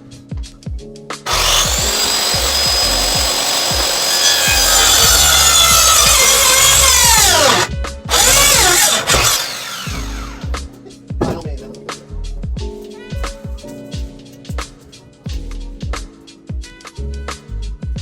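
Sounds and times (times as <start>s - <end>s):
power saw cutting wood: 1.3s - 10.5s.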